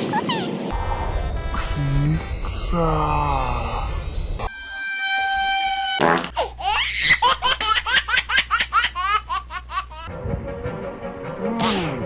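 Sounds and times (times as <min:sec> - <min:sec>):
small child laughing: 0:00.0 - 0:00.6, 0:06.4 - 0:10.1.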